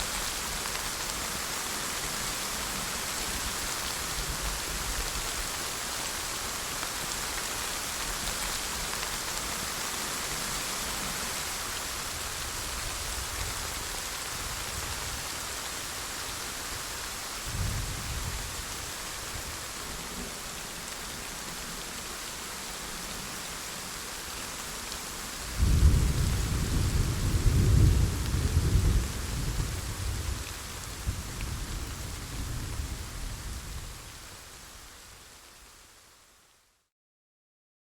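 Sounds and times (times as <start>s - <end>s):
steady rain falling: 0.0s - 36.9s
thunder rumbling: 25.6s - 34.0s.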